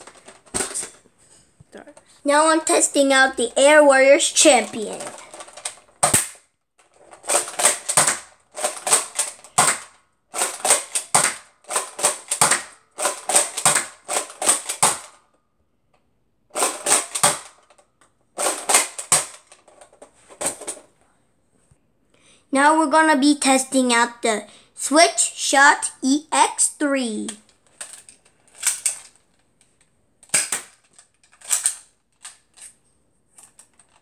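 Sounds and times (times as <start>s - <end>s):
toy blaster clicking and snapping: 4.4s - 6.5s, 7.1s - 15.2s, 16.6s - 17.8s, 18.4s - 19.6s, 27.2s - 29.2s, 30.2s - 32.8s.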